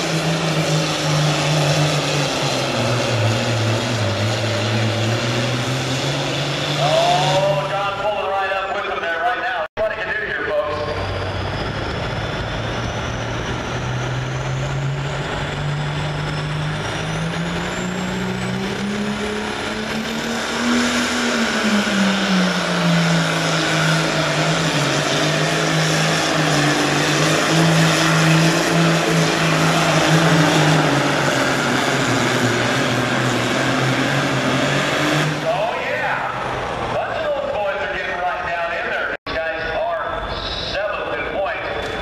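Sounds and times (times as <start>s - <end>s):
diesel engine working hard: 0.0s - 42.0s
high whistle rising: 10.7s - 37.0s.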